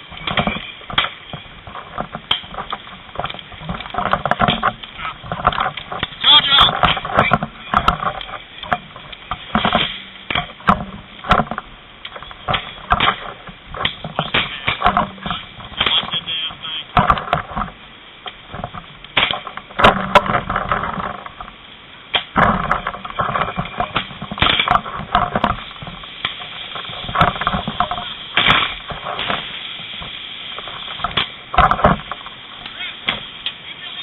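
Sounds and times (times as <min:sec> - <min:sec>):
knocks and clatter: 0:00.0 - 0:33.6
indistinct voices: 0:06.1 - 0:07.8, 0:14.2 - 0:17.0.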